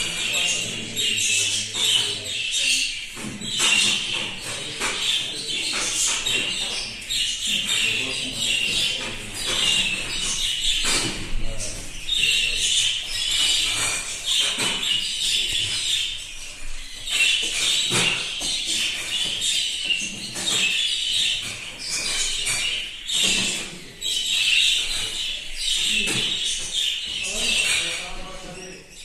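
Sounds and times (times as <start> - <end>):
budgerigars chattering and warbling: 0.0 - 29.0.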